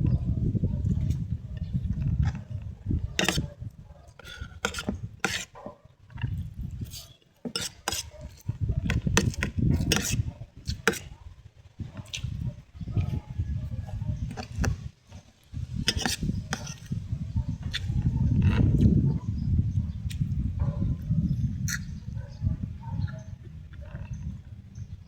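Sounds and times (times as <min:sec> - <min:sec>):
eating noises: 0:00.8 - 0:19.1, 0:20.0 - 0:24.6
cutlery scraping a plate: 0:03.0 - 0:11.1, 0:13.8 - 0:17.0.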